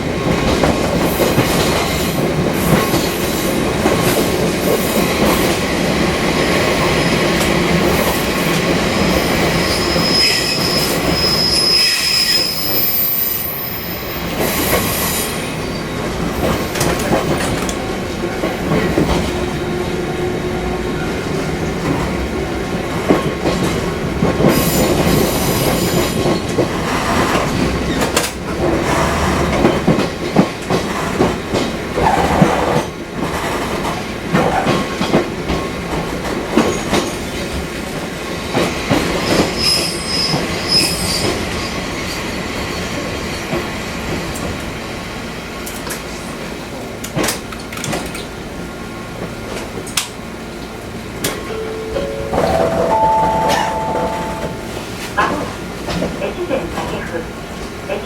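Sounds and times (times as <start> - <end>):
high wheel squeal: 9.5 - 14.1
electric train rolling: 47.0 - 57.8.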